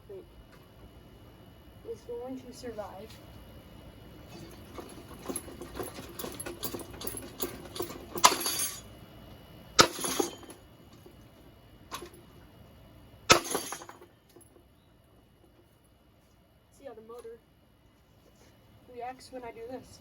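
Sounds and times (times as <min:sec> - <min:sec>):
loud clattering hits with rattle: 0:04.3 - 0:08.9, 0:09.8 - 0:10.6, 0:13.3 - 0:14.1.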